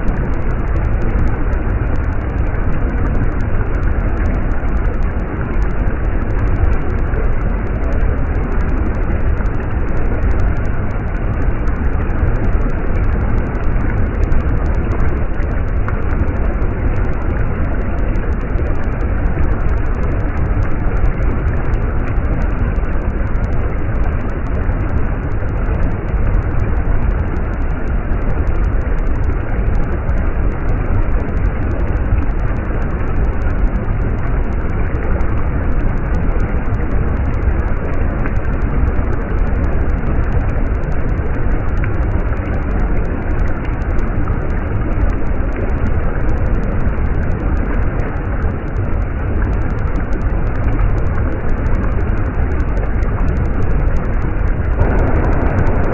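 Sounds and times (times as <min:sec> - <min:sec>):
stream water running: 0:34.0 - 0:55.9.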